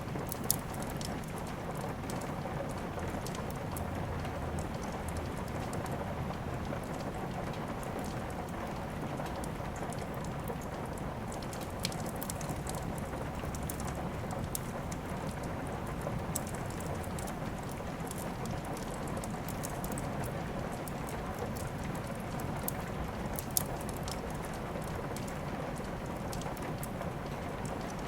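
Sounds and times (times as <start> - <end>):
rain falling: 0.0 - 28.0
wood fire crackling: 0.0 - 28.0.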